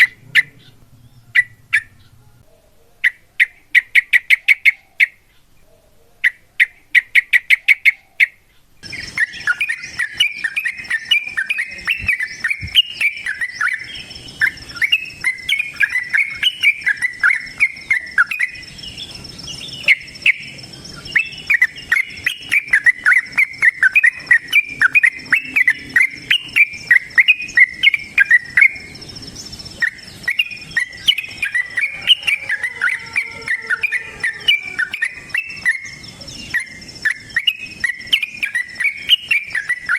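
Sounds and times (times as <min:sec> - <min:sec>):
bird chattering song: 0:00.0 - 0:02.4, 0:06.2 - 0:39.9
high insect drone: 0:08.8 - 0:39.9.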